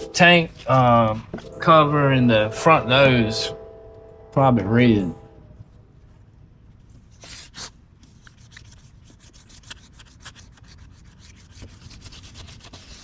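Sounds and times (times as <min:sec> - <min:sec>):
wet sanding plastic: 0:07.2 - 0:13.0.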